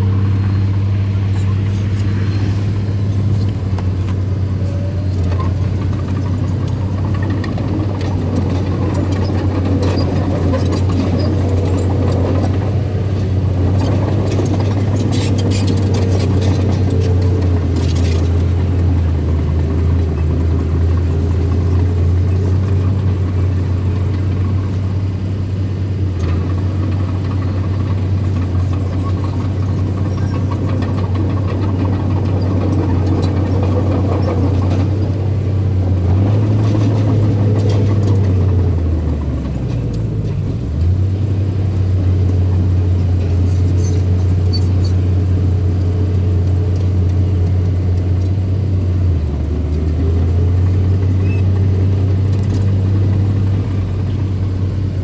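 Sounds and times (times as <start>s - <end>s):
heavy machinery engine droning: 0.0s - 55.0s.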